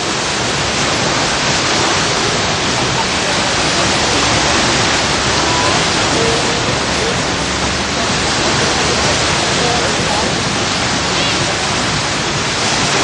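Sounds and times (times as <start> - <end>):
loud rushing noise: 0.0 - 13.0.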